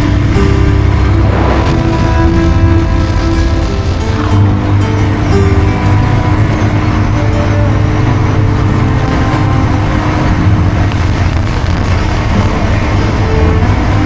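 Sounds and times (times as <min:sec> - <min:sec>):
motorbike engine rumbling: 0:00.0 - 0:14.0.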